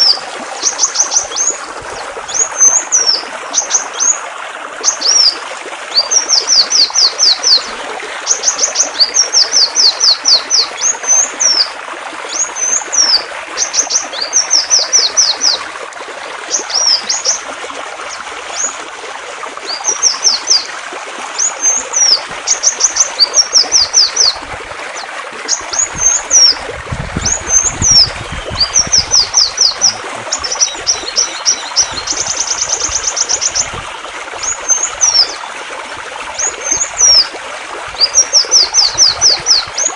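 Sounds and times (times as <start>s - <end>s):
songbird singing: 0.0s - 4.2s, 4.8s - 7.7s, 8.3s - 15.6s, 19.7s - 20.7s, 21.4s - 26.6s, 27.2s - 33.8s, 34.4s - 35.5s, 38.0s - 39.9s
running water: 0.0s - 39.9s.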